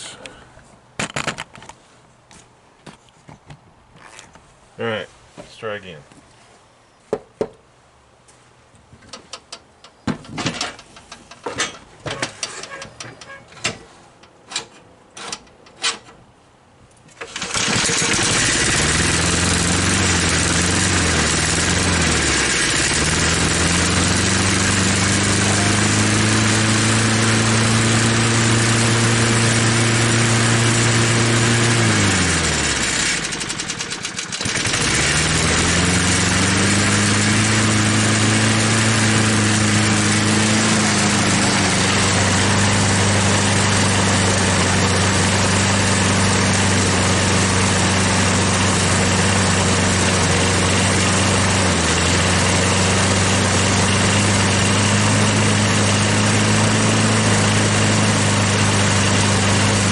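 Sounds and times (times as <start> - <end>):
lawn mower engine running: 10.2 - 13.7, 17.1 - 59.9.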